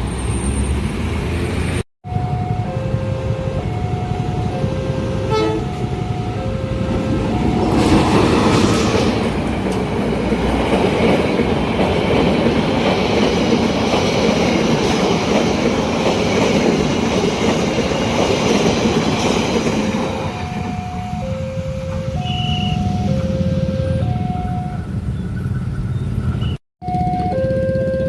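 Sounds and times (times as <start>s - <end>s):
train rumbling past: 0.0s - 27.3s
two-tone crossing warning signal: 2.0s - 28.0s
wheels clattering over rail joints: 6.7s - 20.7s.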